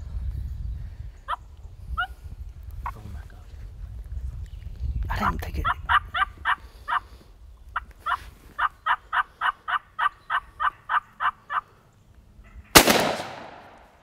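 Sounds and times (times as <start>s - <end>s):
turkey yelps: 5.6s - 7.1s, 7.7s - 11.8s
shotgun shot with echo: 12.8s - 14.0s.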